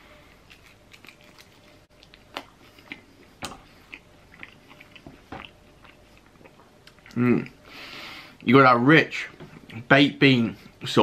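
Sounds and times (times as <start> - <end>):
chewing with wet crunches: 0.5 - 7.2.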